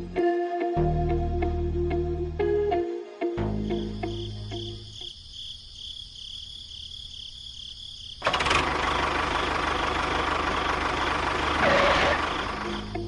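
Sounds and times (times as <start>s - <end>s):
rough pulsing engine: 8.2s - 13.0s.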